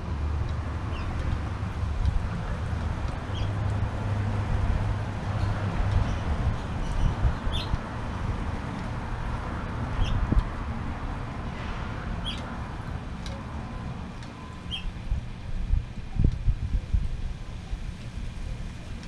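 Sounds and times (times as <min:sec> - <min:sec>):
steady low rumble: 0:00.0 - 0:19.0
small bird chirping: 0:06.8 - 0:07.8, 0:10.0 - 0:10.2.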